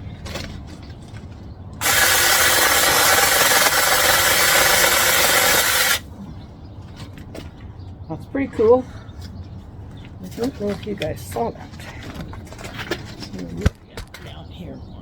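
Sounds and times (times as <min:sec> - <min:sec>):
mini chainsaw running: 0:01.8 - 0:06.0.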